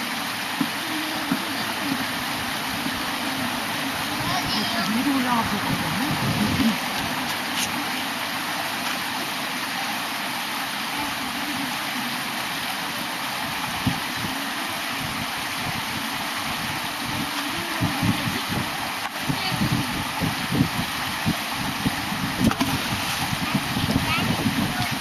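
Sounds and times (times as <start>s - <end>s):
stream water rushing: 0.0s - 25.0s
wind buffeting microphone: 1.3s - 7.7s, 13.4s - 25.0s.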